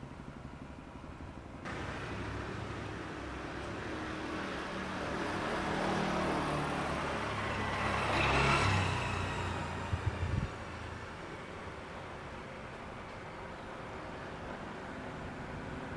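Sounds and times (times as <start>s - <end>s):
vehicle passing by: 1.7s - 11.3s.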